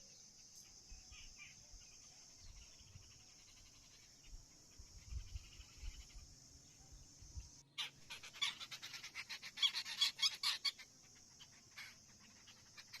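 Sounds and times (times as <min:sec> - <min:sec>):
steady high hiss: 0:00.0 - 0:13.0
bird harsh chattering calls: 0:02.4 - 0:04.2, 0:07.8 - 0:13.0.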